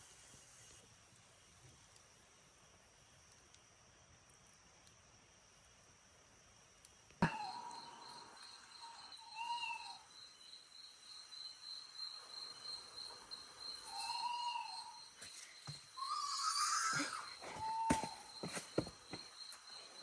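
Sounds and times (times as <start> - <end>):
night insects trilling: 0.2 - 20.0
animal whistled calls: 13.9 - 15.0.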